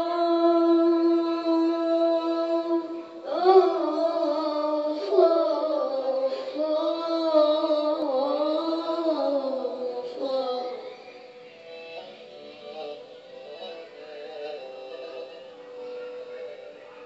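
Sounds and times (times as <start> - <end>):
bowed fiddle melody: 10.0 - 17.0.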